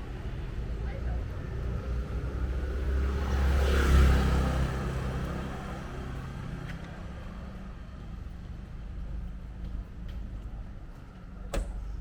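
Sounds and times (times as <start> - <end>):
vehicle passing by: 1.8 - 6.6.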